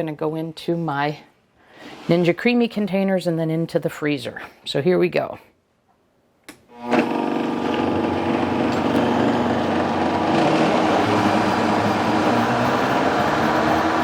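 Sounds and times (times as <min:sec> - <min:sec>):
blender motor running: 0:06.7 - 0:14.0.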